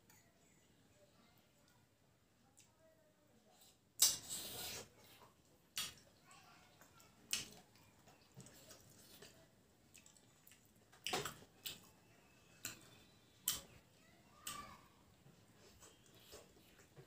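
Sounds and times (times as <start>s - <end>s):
person chewing with wet smacks: 6.8s - 11.9s, 15.5s - 17.0s.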